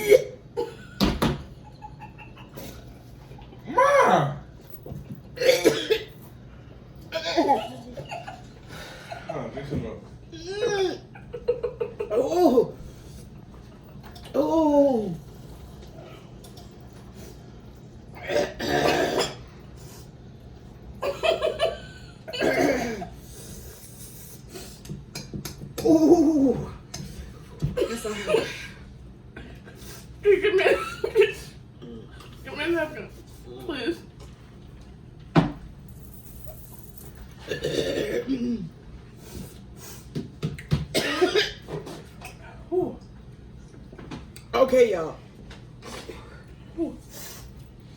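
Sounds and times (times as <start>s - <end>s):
person coughing: 5.4s - 6.2s, 18.2s - 19.5s, 22.3s - 23.2s, 37.4s - 38.7s, 40.9s - 41.8s.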